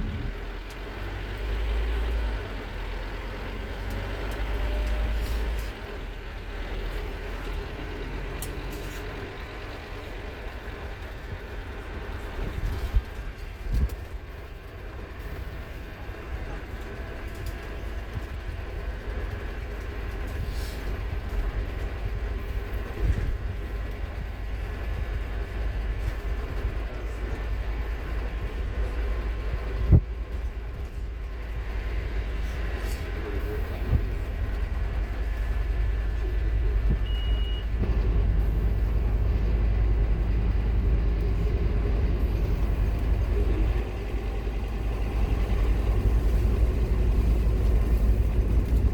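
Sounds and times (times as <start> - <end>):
bus engine rumble: 0.0 - 48.9
high beep: 37.0 - 37.7.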